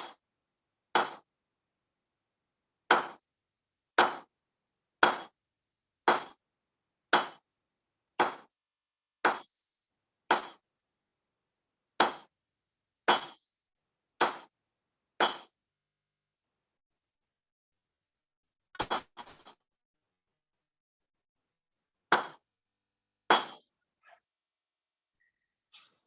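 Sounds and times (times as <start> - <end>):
hammer striking steel on anvil: 1.0 - 1.3, 2.9 - 3.2, 4.0 - 4.3, 5.0 - 5.4, 6.1 - 6.4, 7.1 - 7.4, 8.2 - 8.5, 9.2 - 10.7, 12.0 - 12.3, 13.1 - 13.5, 14.2 - 14.6, 15.2 - 15.5.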